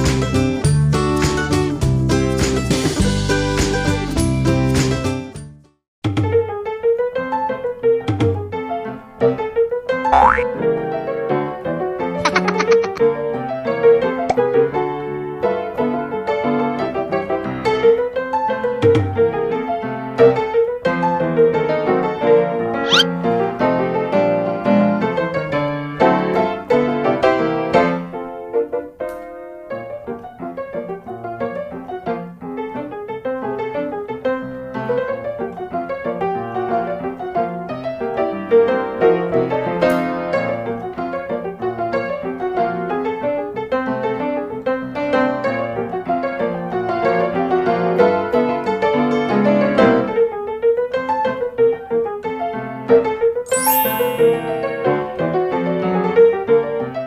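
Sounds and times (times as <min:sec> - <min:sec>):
piano music: 0:53.5 - 0:55.2.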